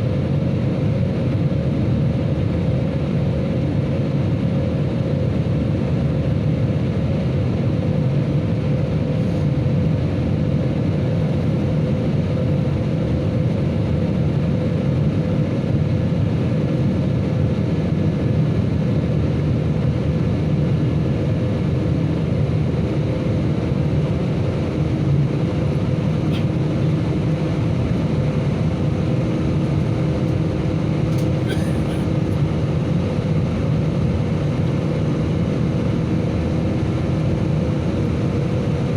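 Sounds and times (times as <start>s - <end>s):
jet engines roaring: 10.1s - 38.9s.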